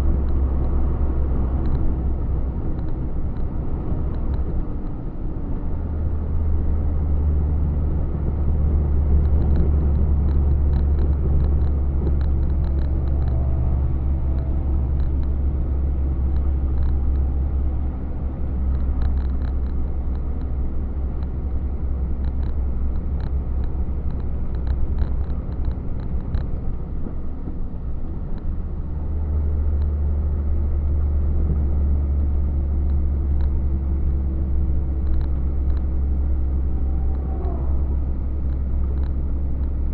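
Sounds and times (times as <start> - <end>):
truck engine drone: 0.0 - 39.9
light ticking rattles: 9.0 - 27.2.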